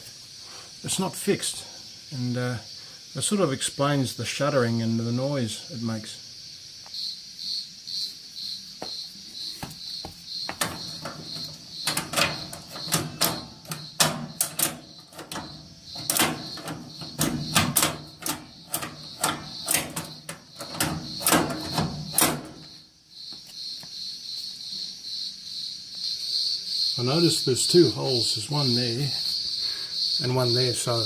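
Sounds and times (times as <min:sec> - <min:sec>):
metal clicks and knocks: 0:10.5 - 0:22.8.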